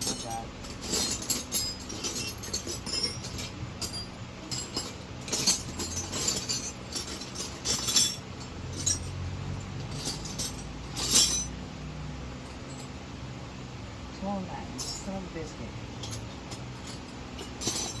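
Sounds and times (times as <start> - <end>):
metal hand tools clinking: 0.0 - 9.2, 9.8 - 11.6, 14.8 - 15.2, 16.0 - 18.0.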